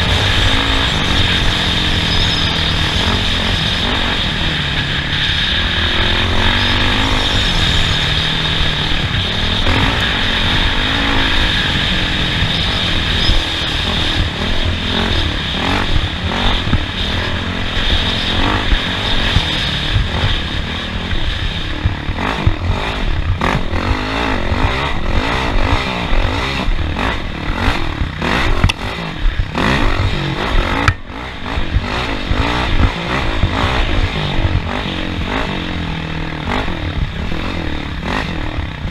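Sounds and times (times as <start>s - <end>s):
vehicle engine revving: 0.0s - 38.9s.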